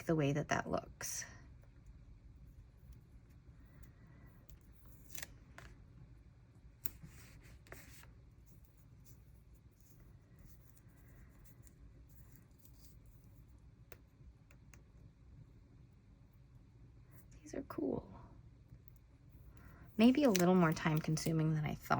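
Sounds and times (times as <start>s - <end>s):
low room hum: 0.0s - 21.9s
paper rustling: 20.0s - 21.3s.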